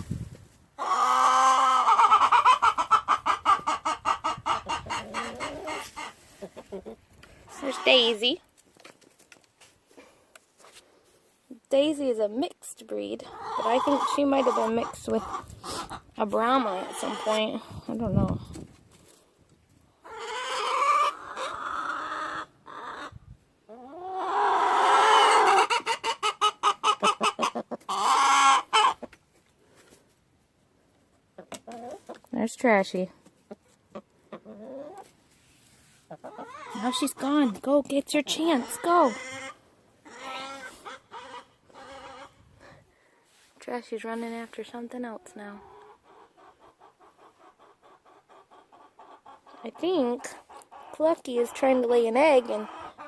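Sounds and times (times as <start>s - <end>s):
hen calling: 0.8s - 8.3s, 13.2s - 17.9s, 36.1s - 37.5s, 38.2s - 42.4s
hen clucking: 0.8s - 8.4s, 12.8s - 18.7s, 20.0s - 29.4s, 31.2s - 32.3s, 33.2s - 35.2s, 35.8s - 42.8s, 44.8s - 53.0s.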